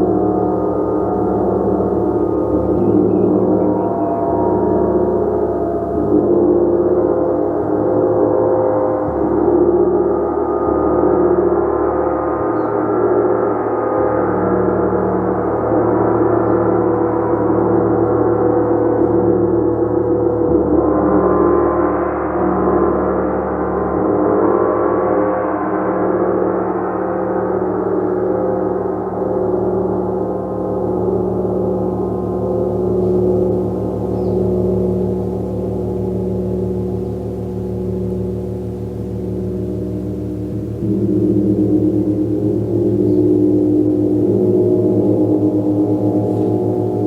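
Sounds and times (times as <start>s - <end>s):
gong ringing: 30.1s - 47.0s.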